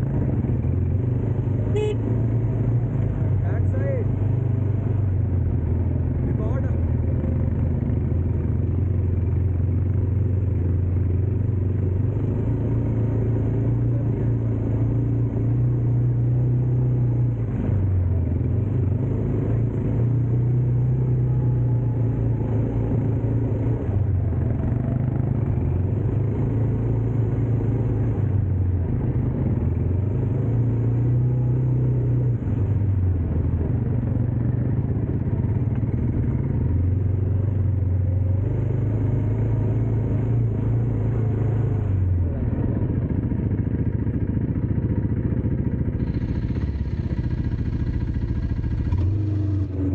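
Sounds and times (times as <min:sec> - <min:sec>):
dirt bike engine running: 0:42.2 - 0:49.9.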